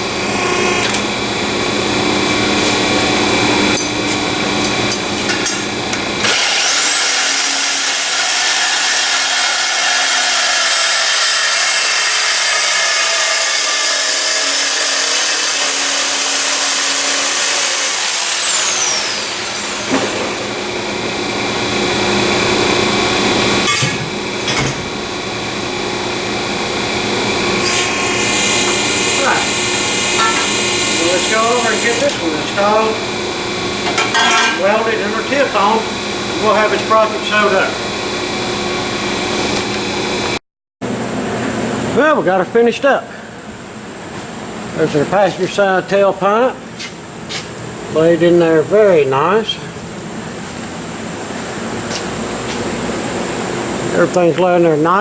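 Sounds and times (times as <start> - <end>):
power tool whining: 5.9 - 37.6.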